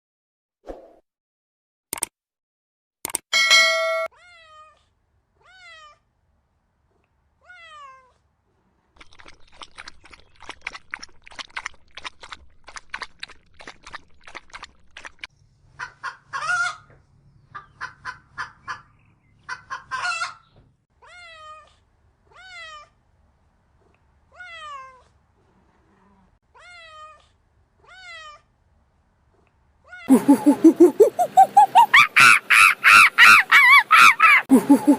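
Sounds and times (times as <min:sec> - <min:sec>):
cat meowing: 0:05.4 - 0:06.0, 0:07.4 - 0:08.2, 0:21.0 - 0:22.9, 0:24.3 - 0:25.1, 0:26.6 - 0:28.5
chicken squawking: 0:15.8 - 0:16.9, 0:19.5 - 0:20.4, 0:30.1 - 0:34.9
chicken clucking: 0:30.1 - 0:34.9.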